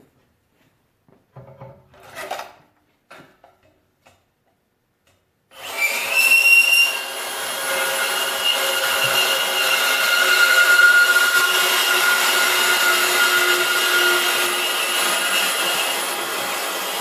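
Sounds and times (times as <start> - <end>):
power saw cutting steel pipe: 5.5 - 17.0.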